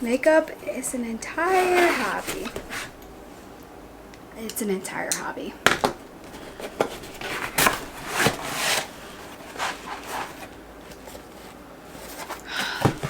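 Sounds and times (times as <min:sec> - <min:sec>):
cardboard and paper rustling tearing: 0:01.3 - 0:03.0, 0:06.2 - 0:13.0.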